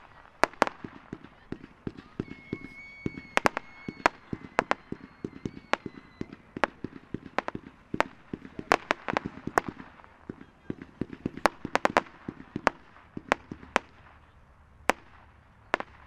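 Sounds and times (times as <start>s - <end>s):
firework bangs and pops: 0.0s - 16.0s
thin high whistle: 2.0s - 6.4s.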